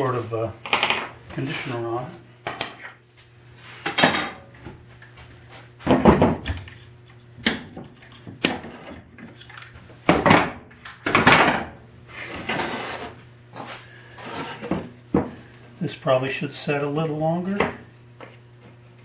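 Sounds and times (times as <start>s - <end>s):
short scrapes on wood: 12.2s - 14.9s.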